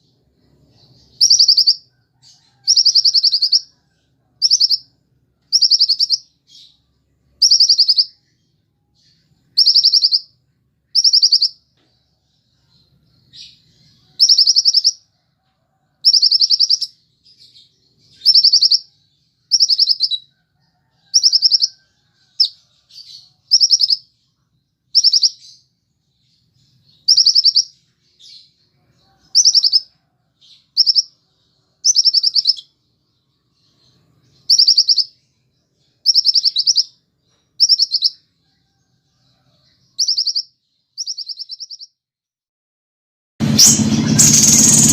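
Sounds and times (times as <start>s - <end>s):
bird singing buzzy trilled notes: 43.4s - 44.9s.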